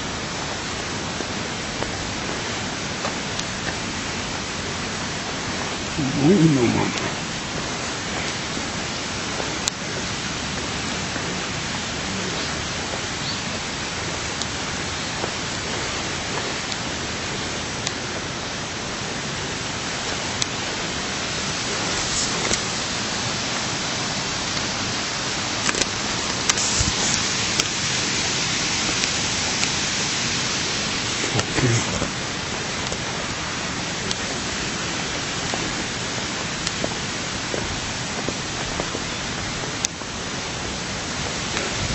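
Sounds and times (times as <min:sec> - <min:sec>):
rushing water: 0:00.0 - 0:41.9.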